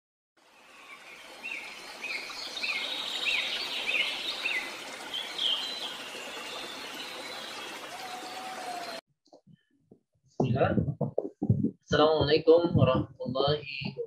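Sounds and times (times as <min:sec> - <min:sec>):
running water hiss: 0:00.5 - 0:09.0
birds chirping: 0:00.6 - 0:09.0.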